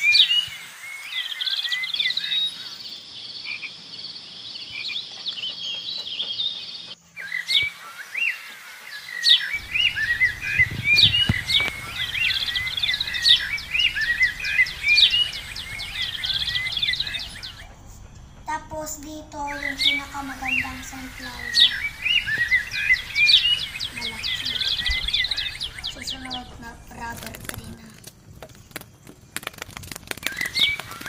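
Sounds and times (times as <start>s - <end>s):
small birds chirping and trilling: 0.0s - 31.0s
low hum: 9.6s - 28.3s.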